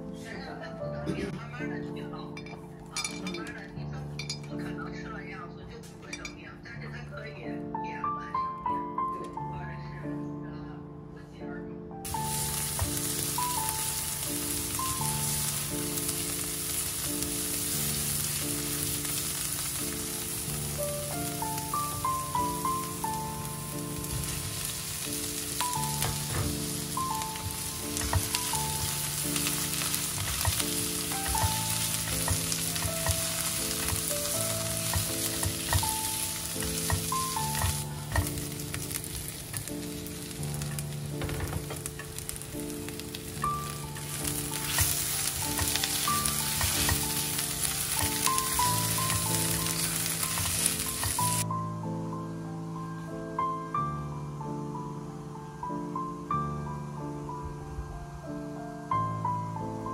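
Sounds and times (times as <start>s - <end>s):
soft background music: 0.0s - 59.9s
food sizzling in oil: 12.0s - 51.5s
spatula scraping and tapping wok: 24.0s - 51.4s.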